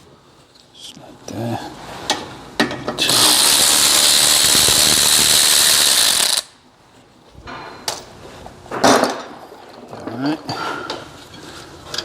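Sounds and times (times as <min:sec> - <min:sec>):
cordless power wrench spinning: 0:03.0 - 0:06.5.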